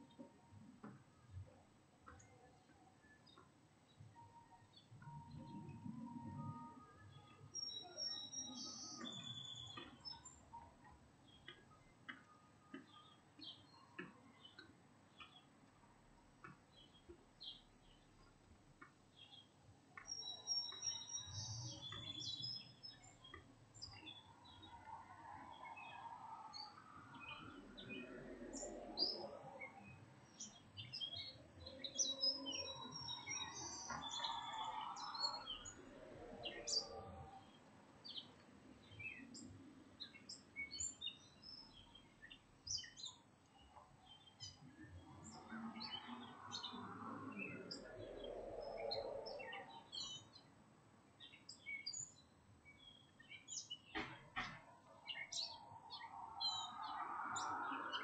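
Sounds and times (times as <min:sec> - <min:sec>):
low background noise: 0:00.0 - 0:58.0
small birds chirping: 0:00.0 - 0:58.0.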